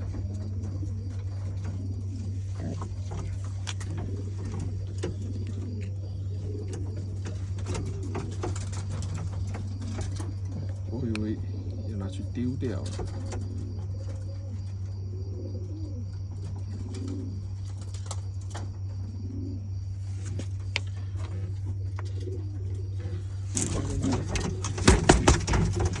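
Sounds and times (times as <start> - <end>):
rustling: 0.0 - 10.8, 23.0 - 26.0
pigeon cooing: 0.0 - 26.0
steady low hum: 0.0 - 26.0.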